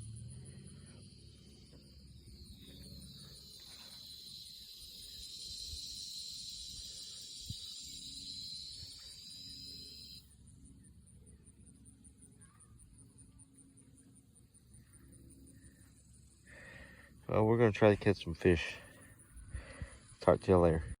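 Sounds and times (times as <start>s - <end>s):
insects buzzing: 0.0s - 21.0s
pulsing insect chirp: 0.0s - 21.0s.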